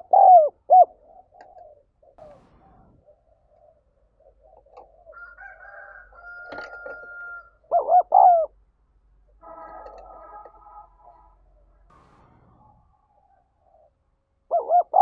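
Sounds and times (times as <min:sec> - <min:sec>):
dove cooing: 0:00.0 - 0:08.6, 0:13.3 - 0:15.0.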